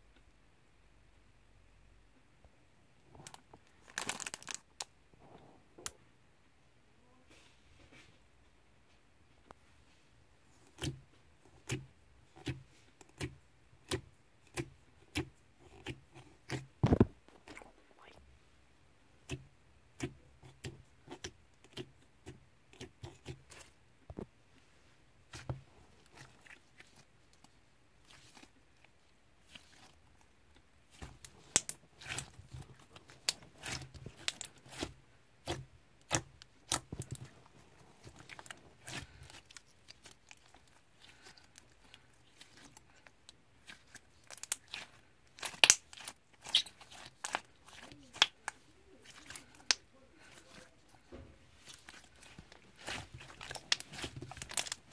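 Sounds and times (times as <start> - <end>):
slime clicking and crackling: 3.2 - 4.9, 30.9 - 54.9.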